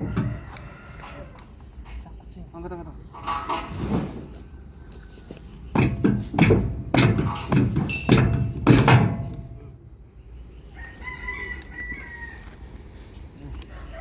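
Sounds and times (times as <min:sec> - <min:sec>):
heavy knocks: 0:00.0 - 0:00.4, 0:05.7 - 0:09.8
rooster crowing faintly: 0:00.0 - 0:01.6, 0:10.7 - 0:12.7.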